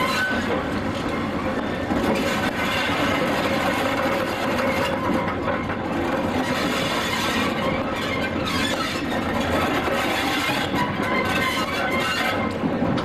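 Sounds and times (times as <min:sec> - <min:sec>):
wheels rumbling and rattling on rails: 0:00.0 - 0:13.0.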